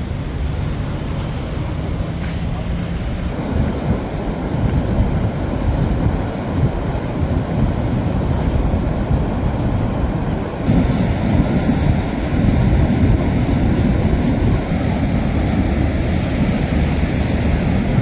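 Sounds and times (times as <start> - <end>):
sea surf rushing: 0.0 - 18.0
wind buffeting microphone: 0.0 - 18.0.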